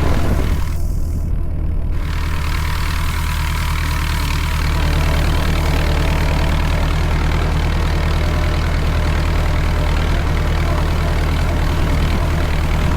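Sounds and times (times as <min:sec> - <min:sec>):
tractor engine droning: 0:00.0 - 0:12.9.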